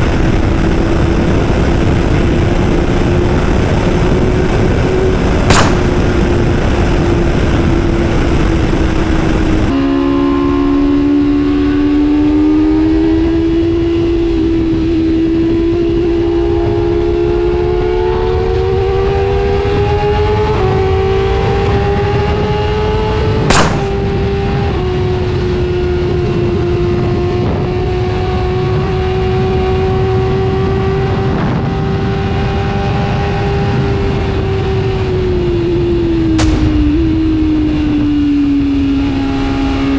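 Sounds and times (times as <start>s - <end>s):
wind rush: 0.0s - 9.7s
sharp cracks: 4.4s - 9.7s, 23.5s - 24.7s, 36.4s - 38.3s.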